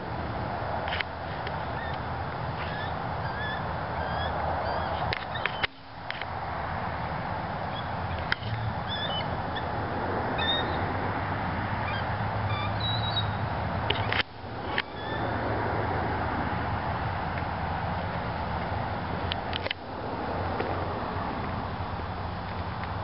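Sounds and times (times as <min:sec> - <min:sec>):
background rumble and hiss: 0:00.0 - 0:23.0
faint high-pitched bird calls: 0:01.6 - 0:05.9, 0:07.7 - 0:09.7, 0:10.4 - 0:10.9, 0:11.8 - 0:13.4, 0:14.0 - 0:15.4.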